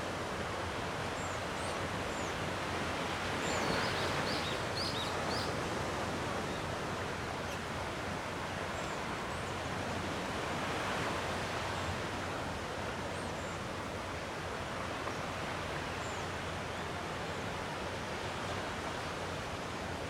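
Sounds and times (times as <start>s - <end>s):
sea waves washing on shore: 0.0s - 20.0s.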